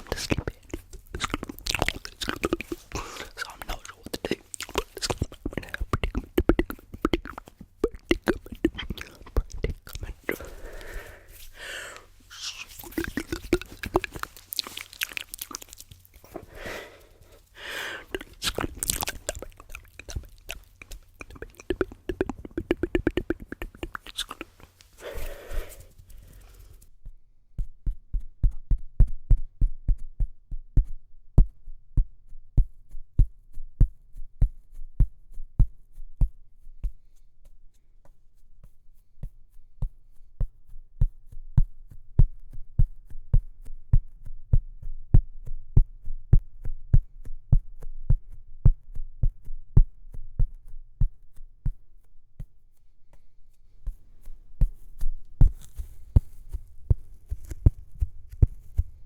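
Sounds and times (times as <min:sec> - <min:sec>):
rhythmic tapping with clicks: 0:00.0 - 0:10.4, 0:18.1 - 0:24.7
soft hissing: 0:10.0 - 0:26.8.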